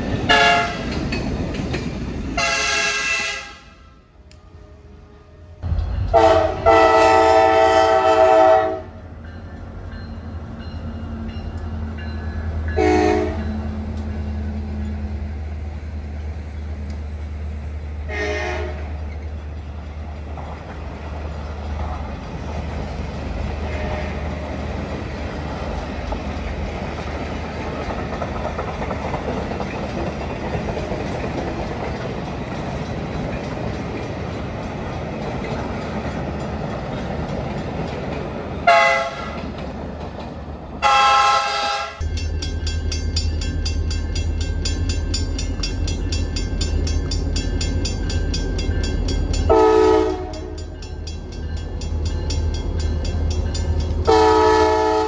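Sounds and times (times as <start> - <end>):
locomotive horn blasts: 0.3 - 0.9, 2.4 - 5.4, 6.1 - 9.0, 12.8 - 13.5, 18.1 - 19.0, 23.6 - 24.4, 38.6 - 39.4, 40.8 - 42.0, 49.5 - 50.8, 54.1 - 55.0
wheel-on-rail noise: 13.4 - 40.9.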